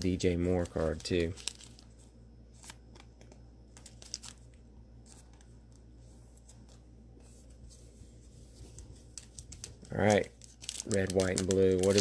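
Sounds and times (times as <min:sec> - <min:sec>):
low electrical hum: 0:00.0 - 0:12.0
trading cards and wrappers rustling: 0:00.0 - 0:12.0.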